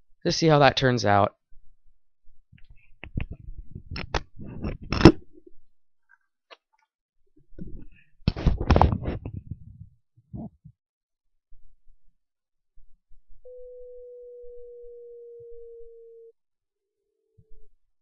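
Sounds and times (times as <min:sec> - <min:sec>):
microphone handling noise: 0:02.6 - 0:05.5, 0:07.5 - 0:10.7.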